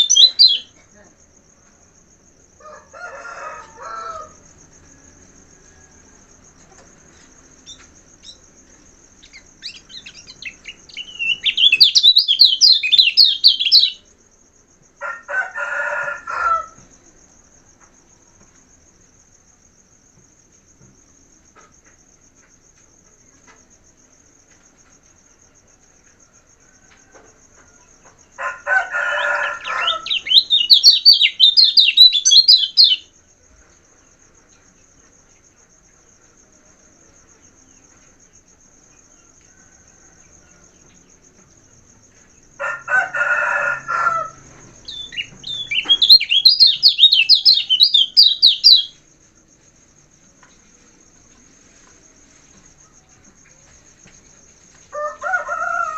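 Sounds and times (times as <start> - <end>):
rooster crowing: 0.0 - 0.6, 2.6 - 6.6, 15.0 - 17.0, 26.3 - 33.0, 39.3 - 41.1, 42.5 - 48.9, 54.9 - 55.9
high insect trill: 0.0 - 55.9
small bird twittering: 9.2 - 14.0, 44.8 - 48.9.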